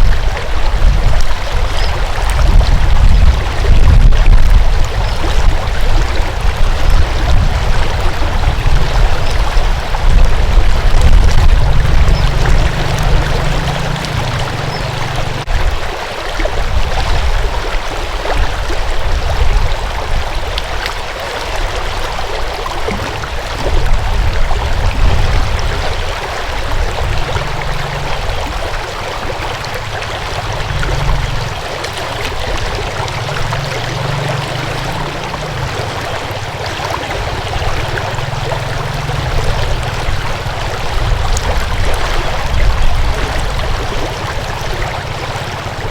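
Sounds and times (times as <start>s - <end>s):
stream water flowing: 0.0s - 45.9s
low rumble: 2.2s - 15.7s, 29.5s - 45.9s.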